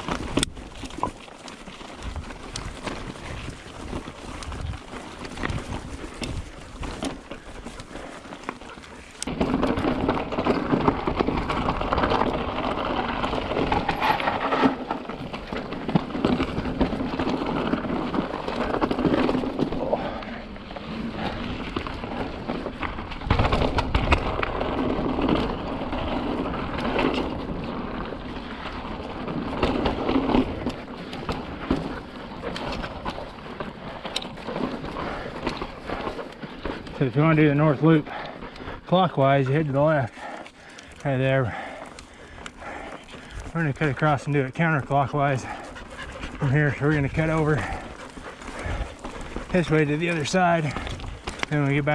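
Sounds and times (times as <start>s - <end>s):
bike knocks and rattles: 0.0s - 20.2s, 20.8s - 37.3s
bike tyres rumbling on rock: 0.0s - 51.9s.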